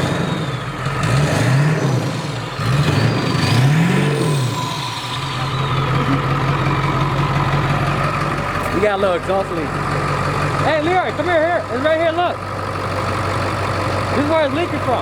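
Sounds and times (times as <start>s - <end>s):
truck engine revving: 0.0s - 15.0s
high whistle with revs: 2.8s - 8.0s.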